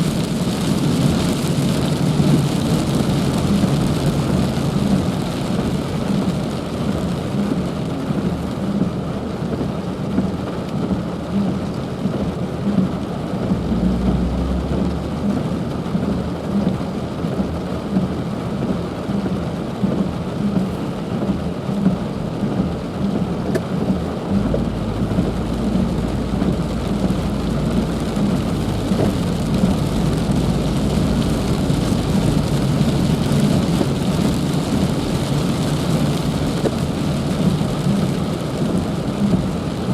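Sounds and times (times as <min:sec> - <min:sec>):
heavy rain falling: 0:00.0 - 0:39.9
low rumble: 0:12.7 - 0:17.6, 0:20.6 - 0:39.9.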